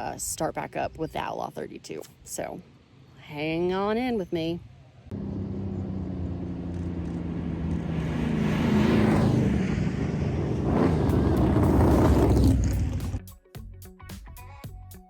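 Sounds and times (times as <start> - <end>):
vehicle engine passing: 5.1 - 13.2.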